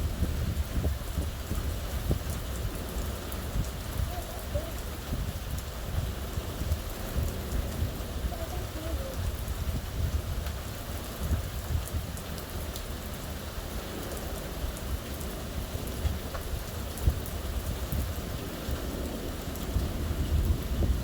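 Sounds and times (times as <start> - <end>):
steady rain: 0.0 - 21.0
rumble of thunder: 13.8 - 21.0.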